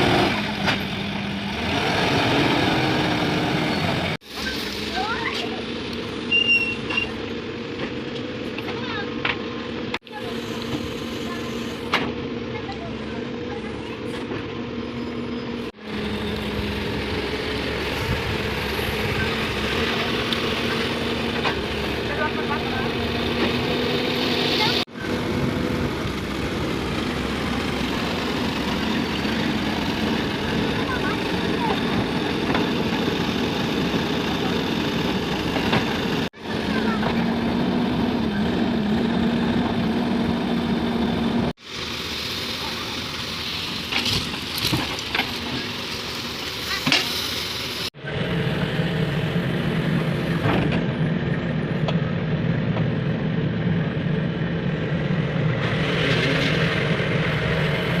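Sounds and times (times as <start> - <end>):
diesel engine humming: 0.0 - 58.0.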